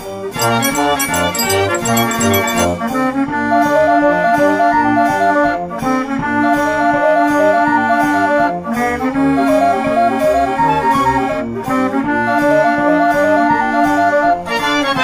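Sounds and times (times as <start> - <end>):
instrumental tune with bass beat: 0.4 - 3.1.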